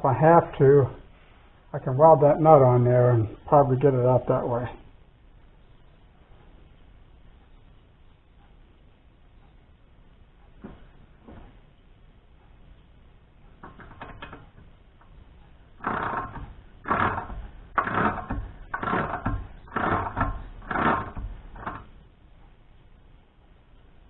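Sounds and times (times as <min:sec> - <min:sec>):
rasping strokes on metal: 0:15.8 - 0:21.9.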